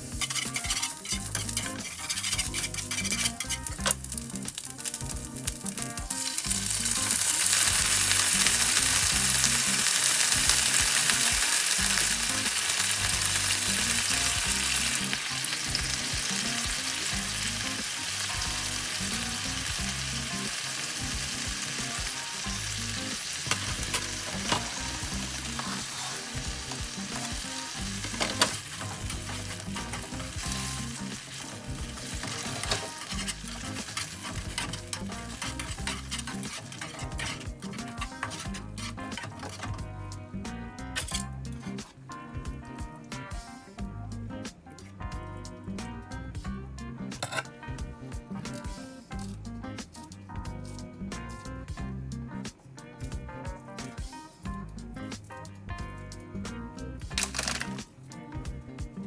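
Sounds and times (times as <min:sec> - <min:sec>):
food sizzling in a frying pan: 0:00.0 - 0:39.9, 0:57.1 - 0:57.9.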